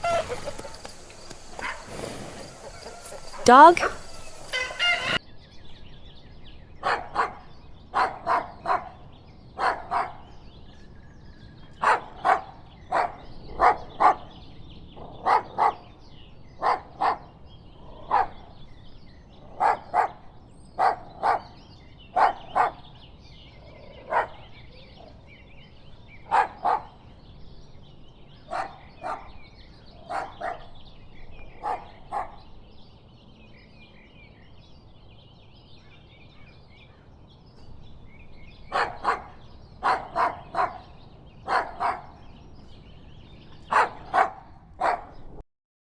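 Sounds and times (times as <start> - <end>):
dog barking: 0.0 - 5.2, 6.8 - 9.0, 9.6 - 10.3, 11.8 - 14.3, 15.2 - 15.8, 16.6 - 17.3, 18.1 - 18.4, 19.6 - 20.2, 20.8 - 21.6, 22.2 - 22.8, 24.0 - 24.6, 26.2 - 27.0, 28.5 - 29.4, 30.0 - 30.8, 31.6 - 32.4, 38.7 - 42.2, 43.7 - 45.2.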